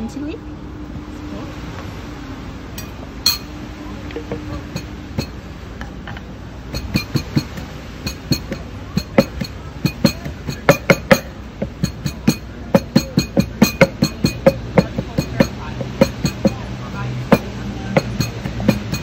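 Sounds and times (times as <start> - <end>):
glassy clinks and knocks: 2.8 - 3.6, 6.7 - 16.6.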